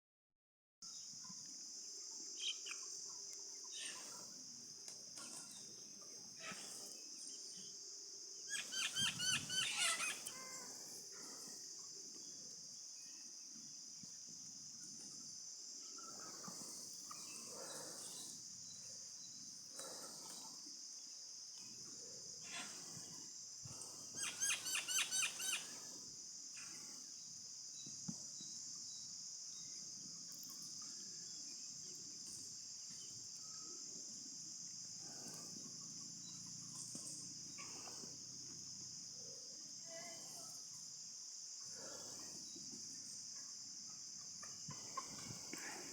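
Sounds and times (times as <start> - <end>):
chickens calling rapidly: 8.5 - 10.3.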